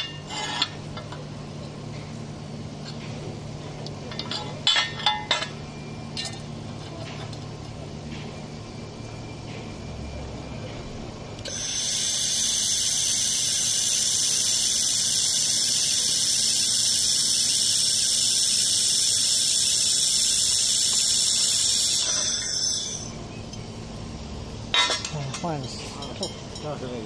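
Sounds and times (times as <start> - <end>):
laser welder high-pitched hiss: 11.4 - 23.2.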